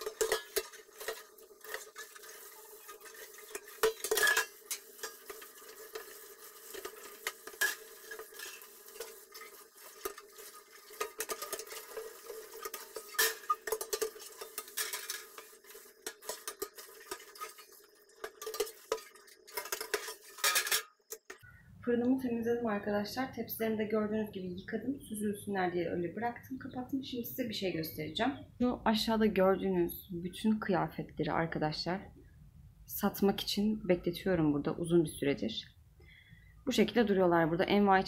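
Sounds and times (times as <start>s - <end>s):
oven trays scrubbed in sink: 0.0s - 20.9s
metal trays clanking: 0.0s - 21.4s.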